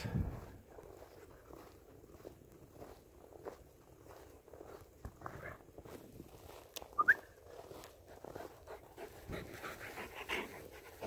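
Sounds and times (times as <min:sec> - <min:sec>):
dog panting: 0:07.8 - 0:11.0.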